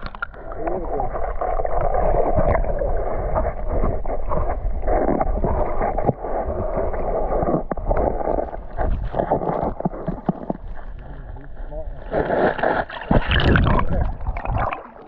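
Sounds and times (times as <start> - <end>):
wind on microphone: 0.0 - 14.9
water splashing as people wade: 12.0 - 15.0.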